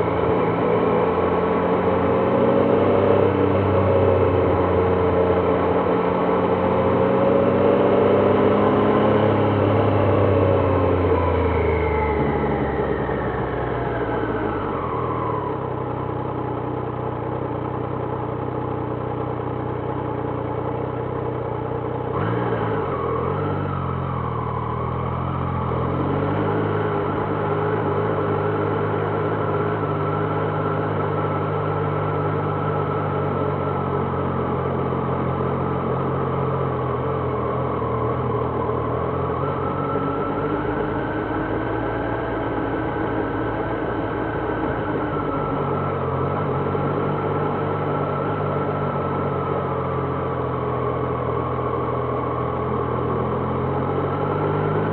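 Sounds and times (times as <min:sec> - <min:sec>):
motorcycle engine revving: 0:00.0 - 0:18.2, 0:19.7 - 0:54.9.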